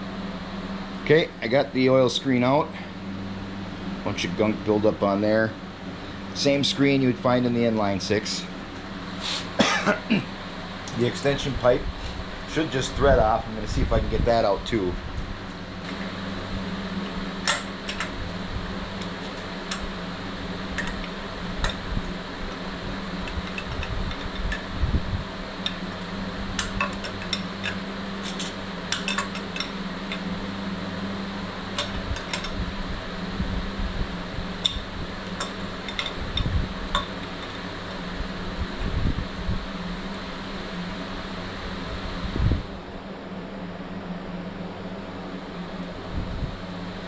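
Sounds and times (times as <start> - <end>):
shop fan humming: 0.0 - 47.0
hand tools clinking on metal: 26.6 - 30.2.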